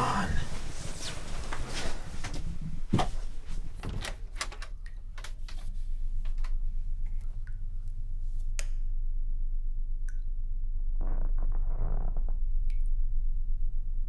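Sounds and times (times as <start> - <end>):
steady low hum: 0.0 - 14.0
door handling clicks: 3.8 - 5.4.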